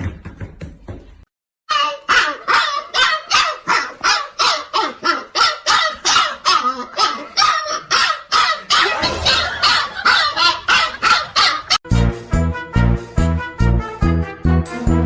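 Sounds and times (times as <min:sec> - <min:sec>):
dog barking: 0:01.7 - 0:11.8.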